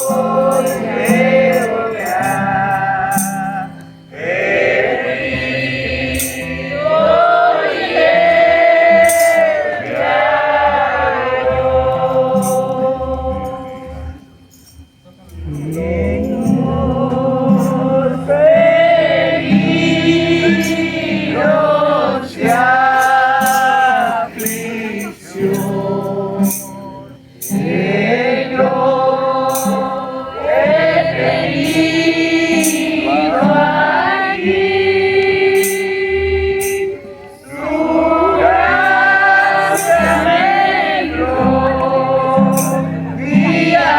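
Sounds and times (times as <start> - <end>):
group singing a hymn: 0.0 - 43.9.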